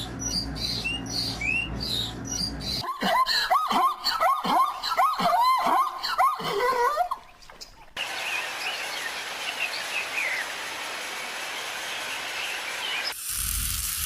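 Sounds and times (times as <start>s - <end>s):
steady outdoor hiss: 7.9s - 14.0s.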